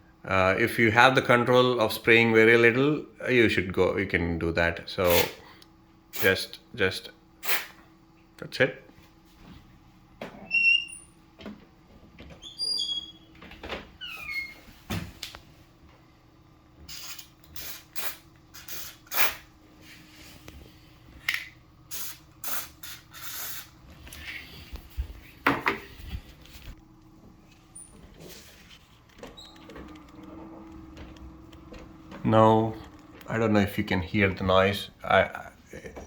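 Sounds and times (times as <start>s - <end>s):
faint steady hum: 0.0s - 36.0s
aerosol spray hissing: 7.4s - 7.7s, 16.9s - 19.4s, 21.9s - 23.7s.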